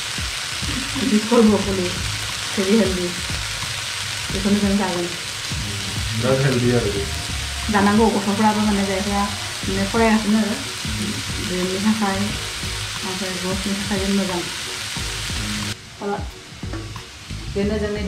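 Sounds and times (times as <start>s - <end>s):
broccoli sizzling in a pan: 0.0s - 18.0s
tune of held notes: 4.3s - 14.3s.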